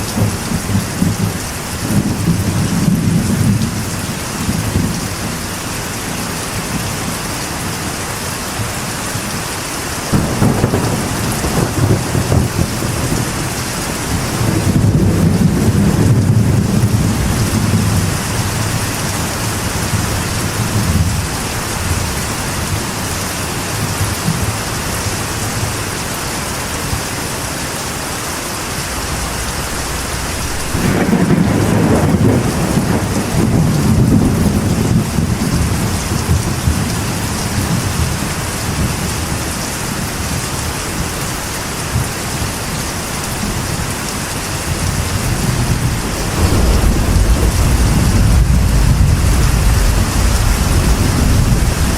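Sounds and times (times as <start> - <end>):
rain on a metal roof: 0.0 - 51.9
thunder rolling: 10.1 - 22.2, 28.3 - 38.2, 44.7 - 51.9.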